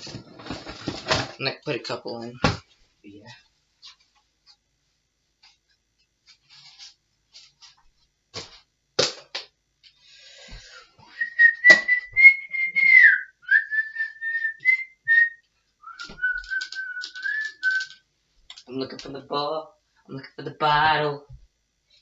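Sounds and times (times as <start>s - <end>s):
person whistling wavering notes: 11.1s - 18.0s.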